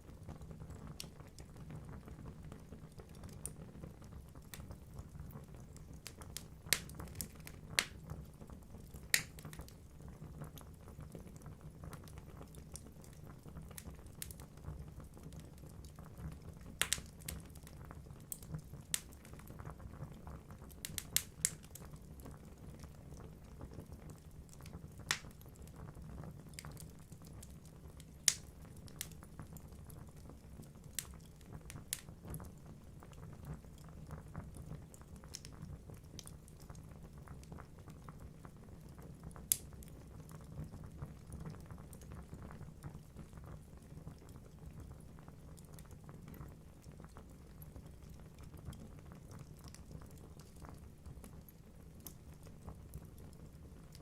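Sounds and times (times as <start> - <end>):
logs crackling in fire: 0.0 - 54.0
sharp pops of fire: 6.0 - 8.0, 9.0 - 9.7, 16.8 - 17.4, 18.3 - 19.2, 20.8 - 21.8, 25.1 - 25.4, 28.2 - 29.2, 39.4 - 39.7.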